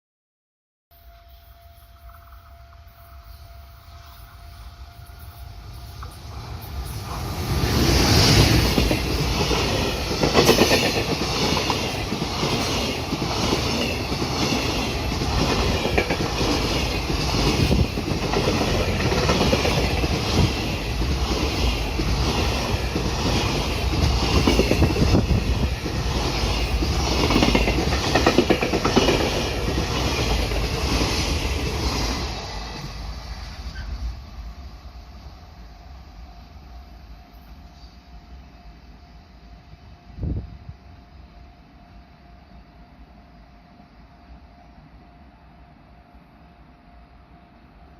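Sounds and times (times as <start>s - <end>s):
freight train wheels clattering: 5.8s - 33.0s.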